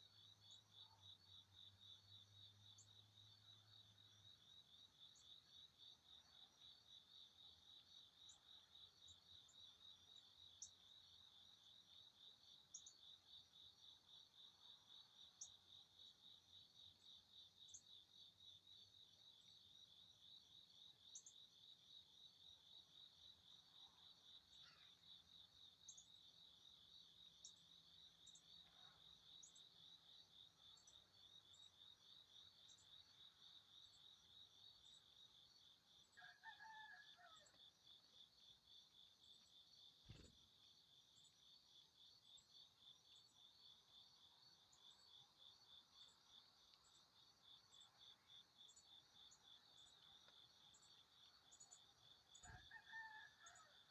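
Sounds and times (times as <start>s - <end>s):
crickets chirping: 0.0s - 53.9s.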